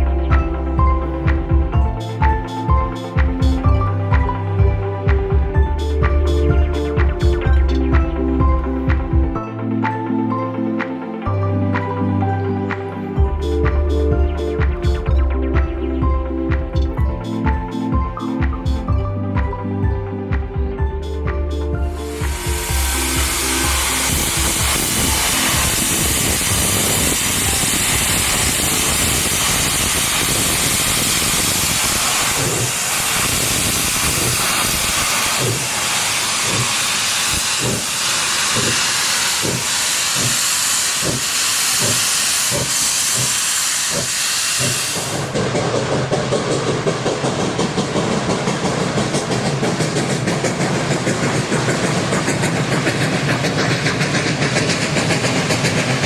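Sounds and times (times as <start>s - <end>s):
train running rapid pulsing: 0.0s - 10.0s, 12.7s - 56.0s
steam locomotive exhaust chuffs: 0.3s - 9.4s, 13.2s - 56.0s
steam hissing: 2.0s - 3.7s, 21.9s - 56.0s.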